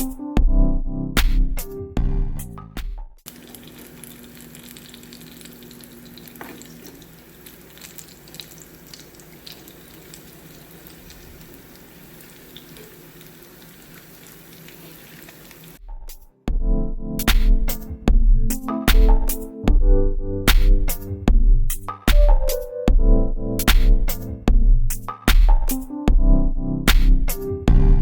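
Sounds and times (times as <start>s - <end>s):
food sizzling in hot oil: 3.3s - 15.8s.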